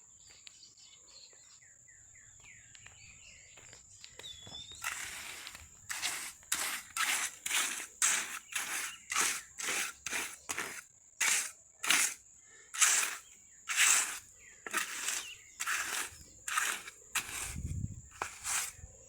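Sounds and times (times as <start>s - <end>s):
rhythmic scraping strokes: 4.8s - 12.2s, 12.8s - 18.8s.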